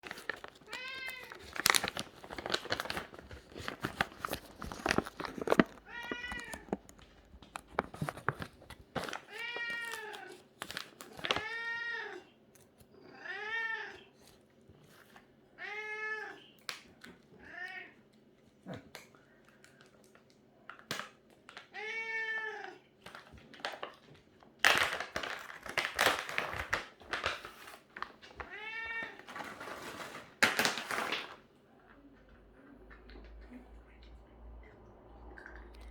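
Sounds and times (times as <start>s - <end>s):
rustling: 0.0s - 11.5s
cat meowing: 5.8s - 6.8s, 11.4s - 12.3s, 13.1s - 14.1s, 15.6s - 16.5s, 21.7s - 22.8s, 28.4s - 29.3s.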